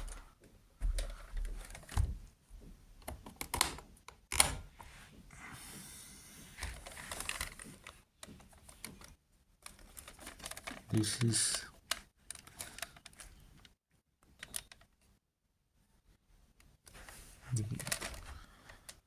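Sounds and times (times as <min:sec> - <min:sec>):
plastic clicks and knocks: 0:03.0 - 0:04.7.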